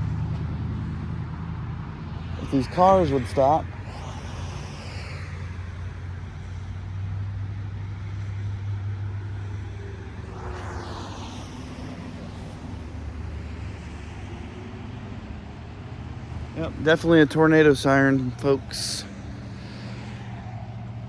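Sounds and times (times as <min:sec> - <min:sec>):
cars passing on a road: 0:00.0 - 0:21.0
distant tornado siren: 0:09.1 - 0:14.4.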